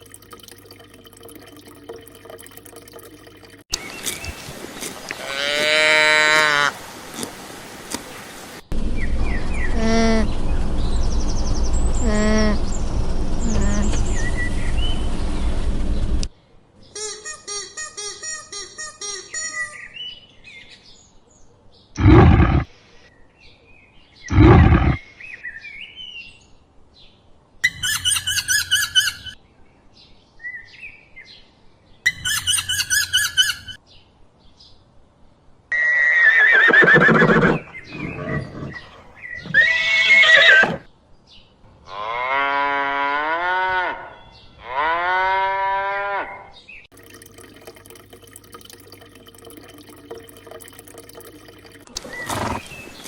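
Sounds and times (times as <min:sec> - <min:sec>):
farm animals calling: 0:35.7 - 0:40.9.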